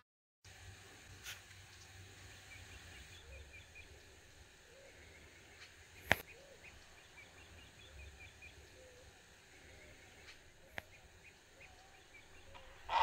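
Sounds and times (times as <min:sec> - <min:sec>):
small birds chirping: 0:01.1 - 0:13.0
sharp click: 0:06.0 - 0:06.3.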